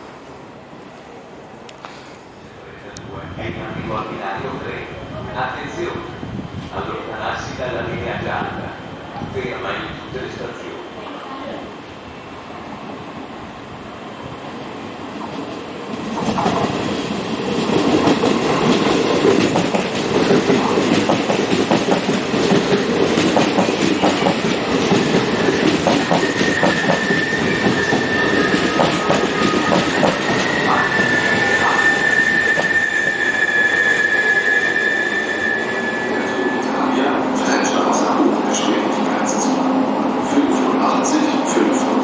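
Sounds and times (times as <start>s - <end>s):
train wheels clacking over joints: 17.6s - 30.6s
high wheel squeal: 25.0s - 37.8s.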